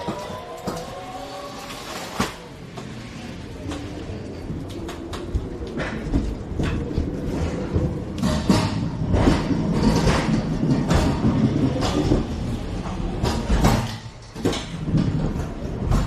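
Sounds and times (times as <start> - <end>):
cargo rattling and clattering: 3.6 - 16.0.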